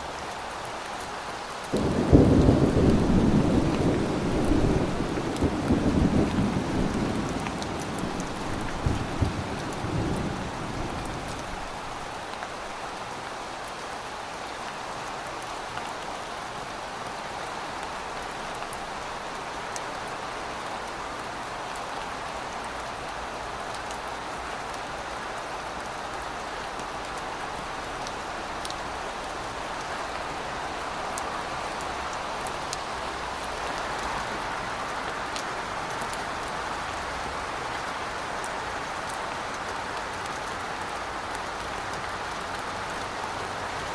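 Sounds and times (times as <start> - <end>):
steady rain falling: 0.0 - 43.9
low thunder rumble: 1.8 - 12.0.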